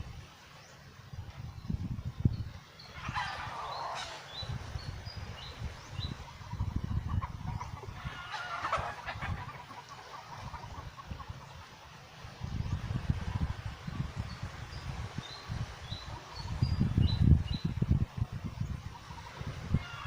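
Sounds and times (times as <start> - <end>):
rough bird calls: 2.8 - 11.5.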